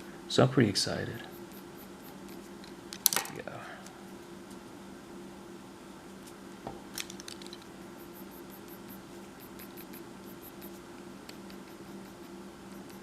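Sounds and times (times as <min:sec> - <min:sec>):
pencil scratching on paper: 0:01.2 - 0:02.5, 0:08.0 - 0:13.0.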